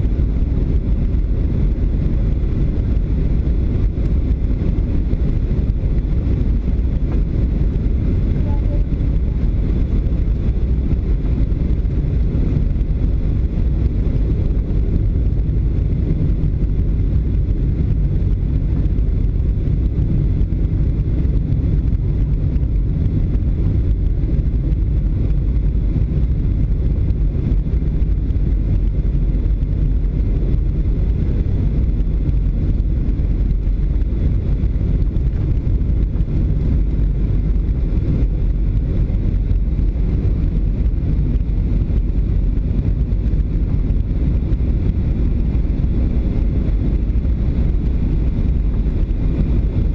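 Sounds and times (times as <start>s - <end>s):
airliner cabin roar: 0.0s - 49.9s
faint high whine: 8.3s - 9.2s.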